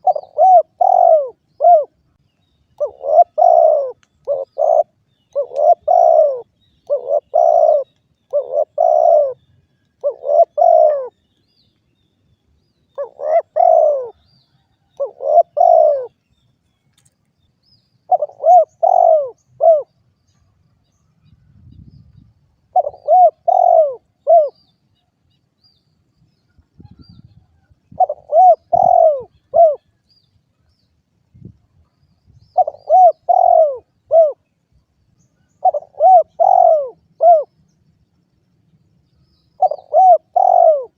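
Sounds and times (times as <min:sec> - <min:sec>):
dove cooing: 0:00.0 - 0:02.0, 0:02.8 - 0:09.4, 0:10.0 - 0:11.2, 0:12.9 - 0:14.3, 0:15.0 - 0:16.2, 0:18.1 - 0:19.9, 0:22.7 - 0:24.6, 0:27.9 - 0:29.9, 0:32.6 - 0:34.5, 0:35.5 - 0:37.6, 0:39.6 - 0:40.9.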